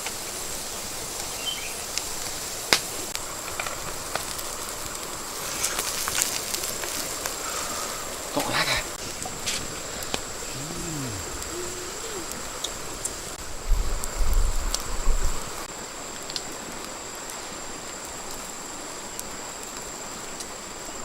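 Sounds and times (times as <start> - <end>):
short low pitched call: 10.5 - 12.5
low rumbling buffet: 10.5 - 13.0.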